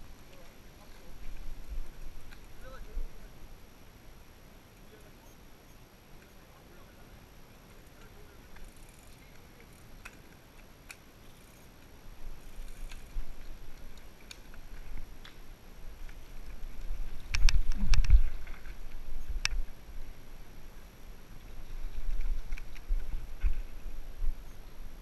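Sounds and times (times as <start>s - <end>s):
bike rolling over rough trail: 7.5s - 19.8s.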